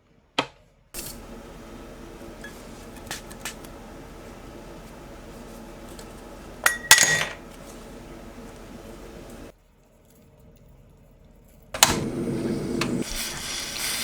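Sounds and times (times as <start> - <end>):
light taps on cookware: 1.0 - 9.5
metal cookware clanking: 1.0 - 9.5
steady background hiss: 1.0 - 9.5.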